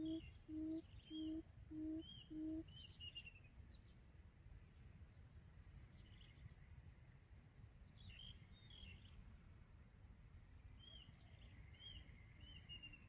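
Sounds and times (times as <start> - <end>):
low hoot of quail call: 0.0 - 2.7.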